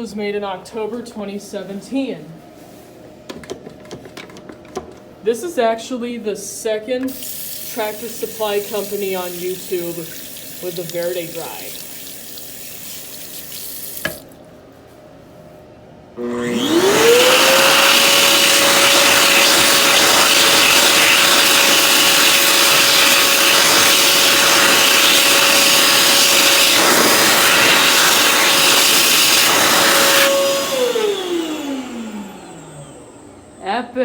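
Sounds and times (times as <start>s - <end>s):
hand dryer whine and air rush: 7.1s - 13.2s, 16.1s - 34.0s.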